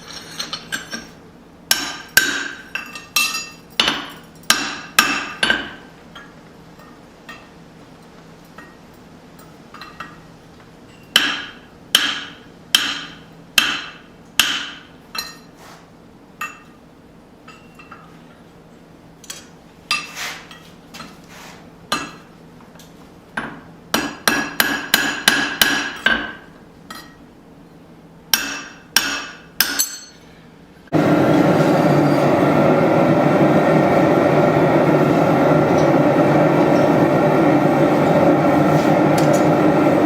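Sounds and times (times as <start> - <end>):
hammer striking metal on anvil: 1.7 - 7.5, 11.0 - 15.5, 16.4 - 16.8, 21.9 - 22.3, 23.4 - 27.2, 28.3 - 30.3, 39.2 - 39.6
loud steady noise: 30.9 - 40.0.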